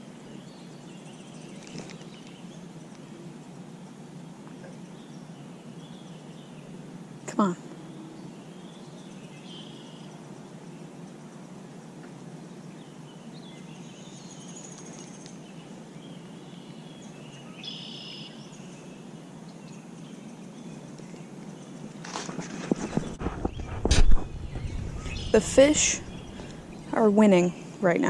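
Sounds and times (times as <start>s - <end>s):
outdoor background hiss: 0.0s - 28.0s
faint high bird chirps: 7.4s - 10.1s, 16.1s - 19.0s, 22.9s - 27.6s.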